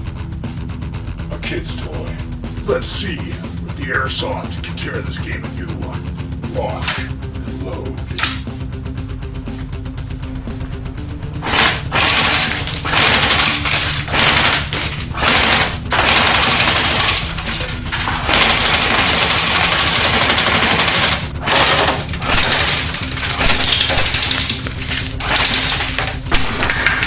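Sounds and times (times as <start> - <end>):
background music: 0.0 - 27.0
airsoft rifle firing bursts: 11.4 - 27.0.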